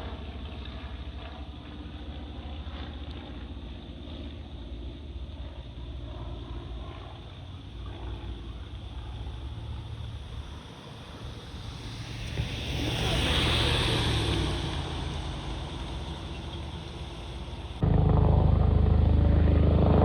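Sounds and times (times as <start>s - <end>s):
jet engine roar: 6.6s - 20.0s.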